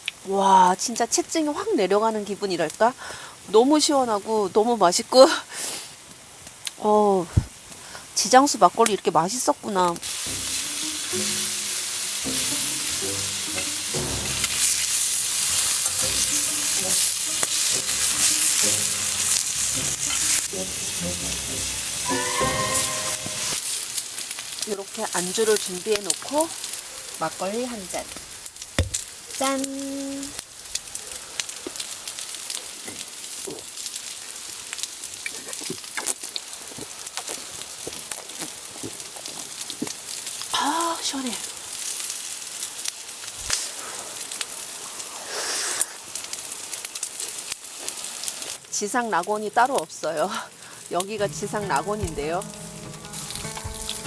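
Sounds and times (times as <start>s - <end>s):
fire crackling and popping: 5.8s - 21.8s, 23.6s - 54.0s
food sizzling in oil: 8.0s - 30.7s, 39.5s - 54.0s.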